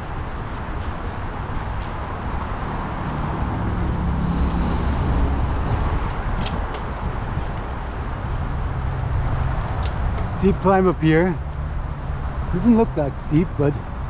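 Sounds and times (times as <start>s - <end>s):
rushing wind and road noise: 0.0s - 14.0s
passing vehicle engine: 1.3s - 14.0s.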